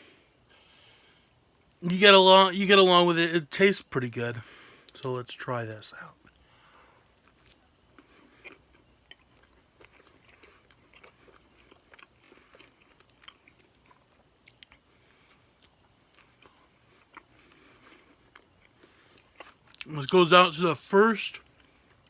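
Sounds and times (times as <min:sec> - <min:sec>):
person chewing food: 0:06.2 - 0:20.2, 0:21.3 - 0:22.0.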